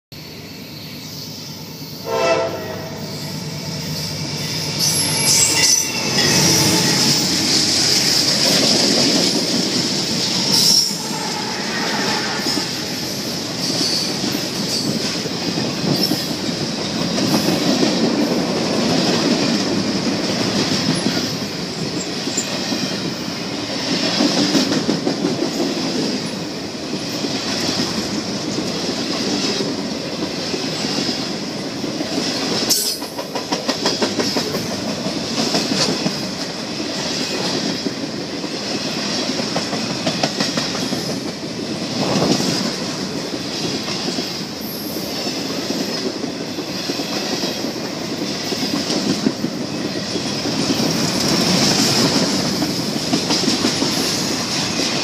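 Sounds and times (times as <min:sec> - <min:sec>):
train horn: 0:02.0 - 0:03.4, 0:05.0 - 0:07.4, 0:10.5 - 0:13.0
rumble of rolling train wheels: 0:02.5 - 0:55.0
high wheel squeal: 0:02.9 - 0:08.2, 0:10.4 - 0:13.1
clickety-clack over rail joints: 0:04.6 - 0:55.0.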